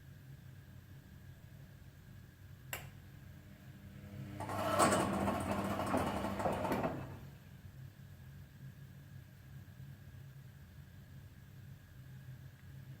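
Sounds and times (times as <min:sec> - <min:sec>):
click: 0:02.7 - 0:02.9
washing machine humming: 0:03.4 - 0:07.4
loud metallic rattling noise: 0:04.4 - 0:07.3.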